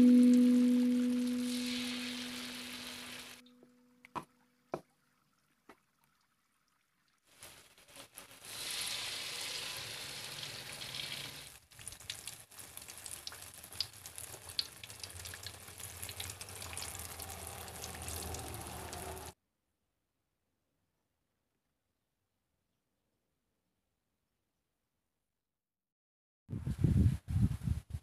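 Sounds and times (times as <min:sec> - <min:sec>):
fruit deep-frying in oil: 0:00.0 - 0:03.5, 0:07.0 - 0:19.4.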